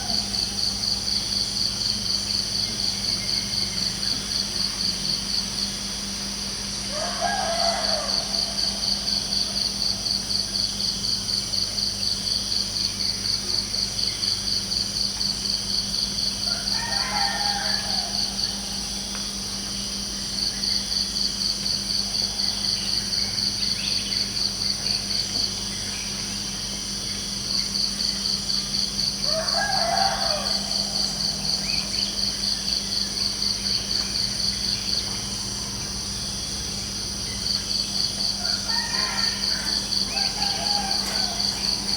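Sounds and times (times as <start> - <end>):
crickets chirping: 0.0 - 41.9
rooster crowing: 6.9 - 9.8, 16.4 - 18.9, 29.2 - 32.5, 38.2 - 41.9.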